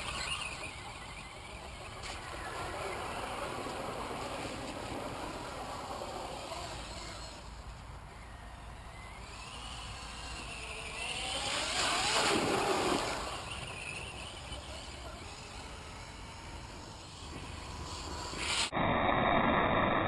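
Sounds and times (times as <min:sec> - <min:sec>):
electric toy truck motor whining: 0:00.0 - 0:18.8
rush of noise: 0:17.0 - 0:20.0.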